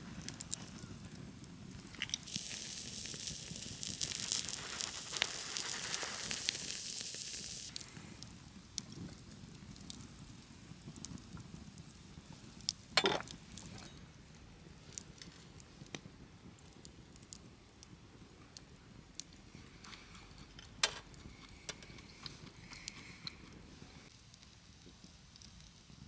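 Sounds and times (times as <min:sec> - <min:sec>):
sharp cracks from fire: 0:00.0 - 0:13.6
wood fire crackling: 0:00.0 - 0:26.0.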